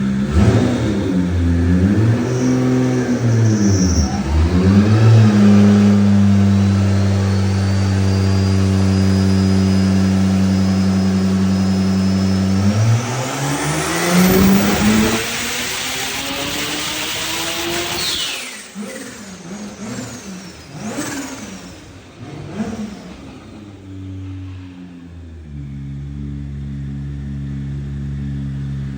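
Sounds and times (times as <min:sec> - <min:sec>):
car engine revving: 0:00.0 - 0:28.9
faint high turbo whistle: 0:01.7 - 0:19.4.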